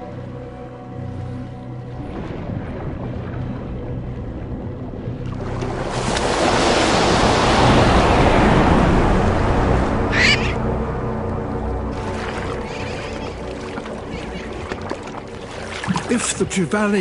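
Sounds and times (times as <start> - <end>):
background music with held notes: 0.0 - 6.3, 8.6 - 17.0
ocean surf rushing: 5.4 - 10.7.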